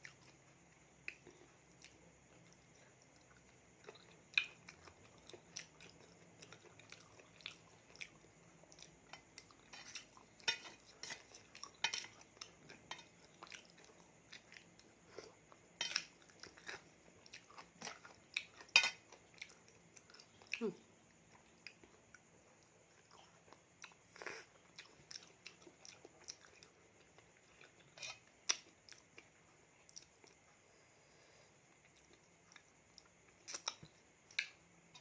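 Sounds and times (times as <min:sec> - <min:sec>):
person chewing: 0:00.0 - 0:30.5, 0:31.7 - 0:35.0.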